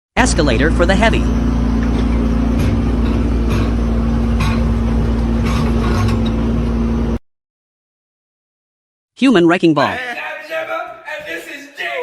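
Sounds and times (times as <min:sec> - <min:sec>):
engine running: 0:00.2 - 0:07.2.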